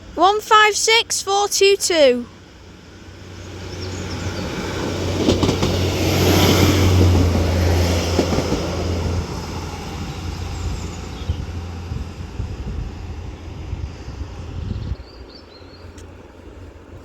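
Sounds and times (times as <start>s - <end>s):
diesel train rumble: 0.0s - 17.0s
train wheel noise: 2.5s - 14.6s.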